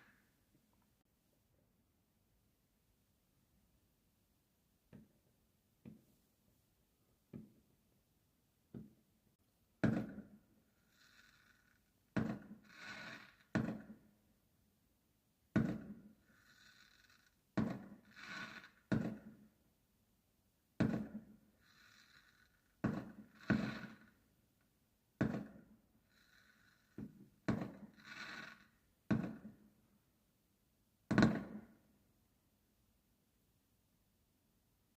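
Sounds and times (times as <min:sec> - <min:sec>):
fireworks crackling: 0:10.8 - 0:11.8, 0:12.4 - 0:13.5, 0:18.0 - 0:18.9, 0:21.6 - 0:24.1, 0:27.5 - 0:28.7.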